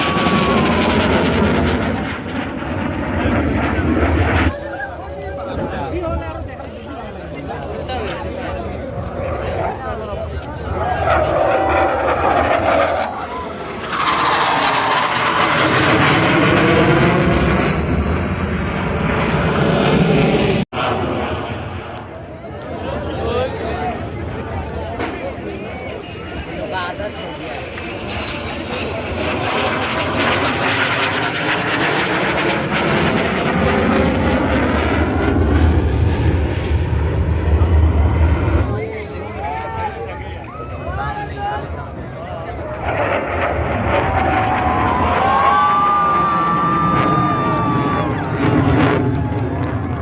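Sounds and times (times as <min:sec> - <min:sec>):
deep rumble: 0:00.0 - 0:04.6, 0:08.5 - 0:22.4, 0:27.6 - 0:39.6, 0:41.7 - 0:50.0
jet aircraft roar: 0:00.0 - 0:50.0.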